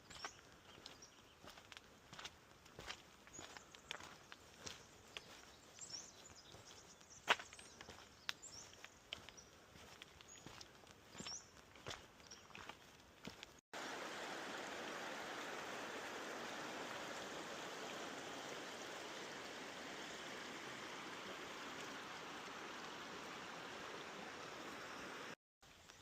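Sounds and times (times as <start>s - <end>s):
stream water rushing: 13.8s - 25.4s.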